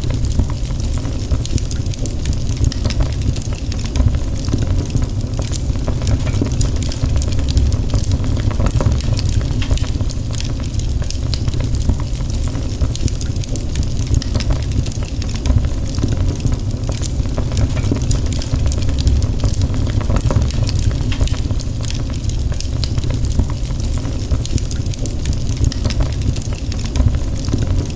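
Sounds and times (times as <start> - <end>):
fire crackling and popping: 0.0 - 27.9
low rumble: 2.5 - 24.6.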